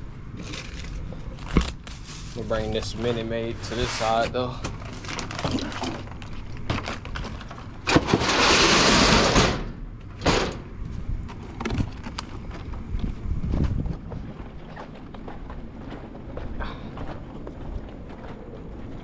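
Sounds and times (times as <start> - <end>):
loud rushing scrape: 7.9 - 9.7.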